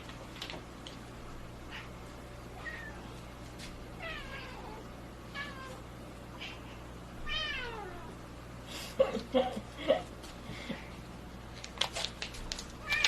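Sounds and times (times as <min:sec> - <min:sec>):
cat meowing: 0:02.6 - 0:03.1, 0:07.2 - 0:08.1.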